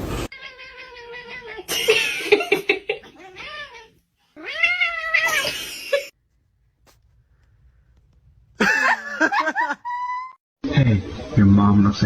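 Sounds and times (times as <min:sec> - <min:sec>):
cat meowing: 0:00.3 - 0:01.7.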